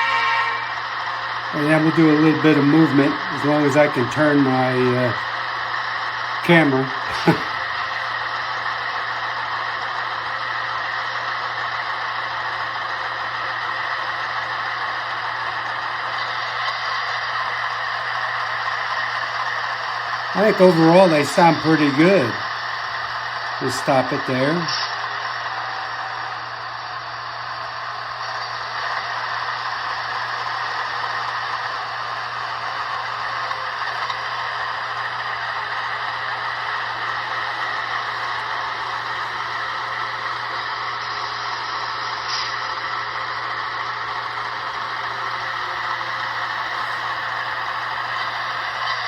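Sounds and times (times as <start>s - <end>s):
diesel engine sound from tiny speakers: 0.0s - 49.0s.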